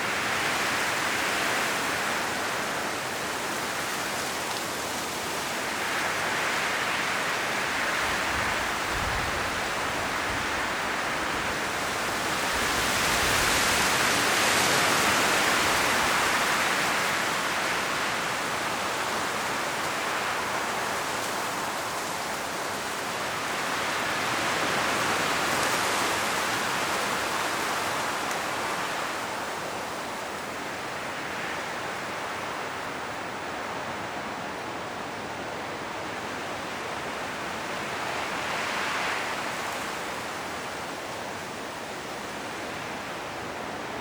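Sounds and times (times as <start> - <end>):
wind rustling tree leaves: 0.0 - 44.0.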